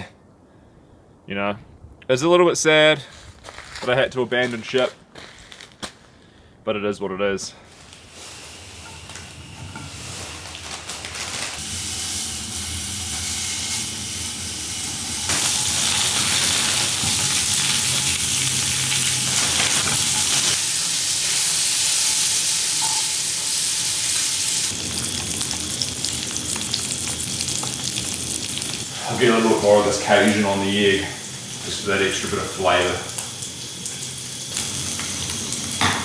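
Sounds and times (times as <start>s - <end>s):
egg sizzling in a pan: 7.7s - 36.0s.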